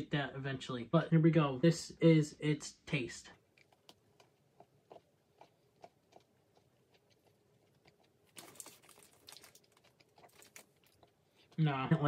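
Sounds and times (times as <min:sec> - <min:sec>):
chocolate bar crunching: 0:03.5 - 0:11.6.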